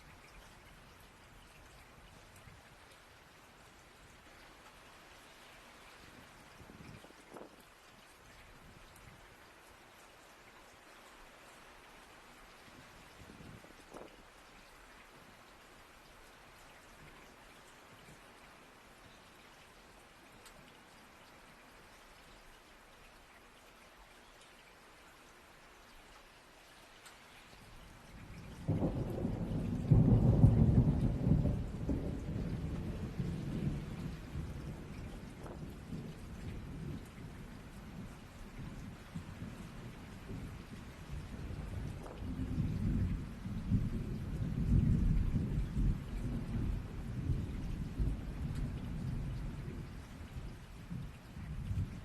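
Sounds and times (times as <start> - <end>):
light steady rain: 0.0 - 52.0
thunder rumbling: 28.3 - 52.0.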